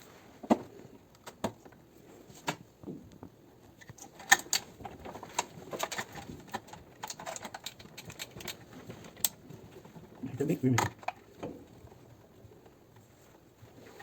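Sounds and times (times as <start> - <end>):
washing machine parts clicking: 3.8 - 12.0.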